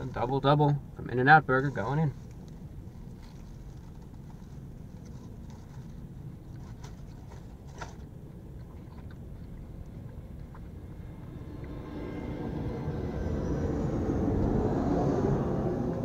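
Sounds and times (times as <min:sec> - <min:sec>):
low traffic rumble: 0:00.0 - 0:16.0
person chewing a burger: 0:02.2 - 0:12.1.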